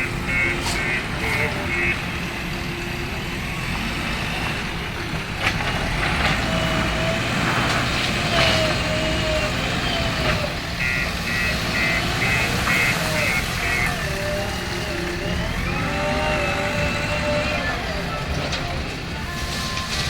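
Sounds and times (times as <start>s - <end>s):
reversing alarm beeping: 0.0s - 3.6s, 10.7s - 18.4s
diesel machinery rumbling: 0.0s - 20.0s.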